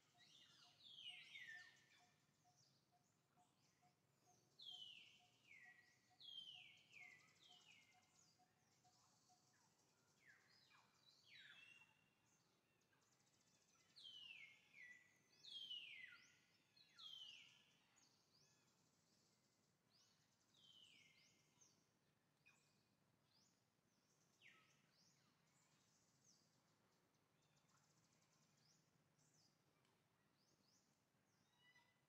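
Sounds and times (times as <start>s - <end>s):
faint outdoor background noise: 0.0s - 32.0s.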